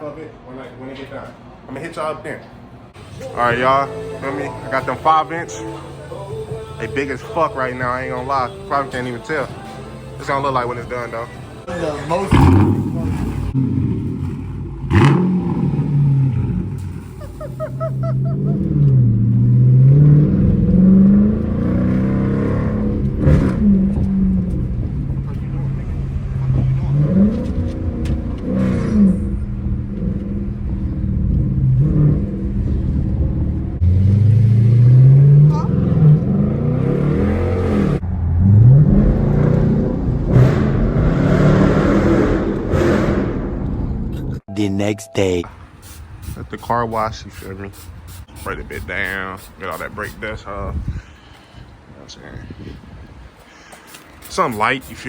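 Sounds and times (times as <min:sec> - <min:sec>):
engine revving: 0:10.2 - 0:44.4.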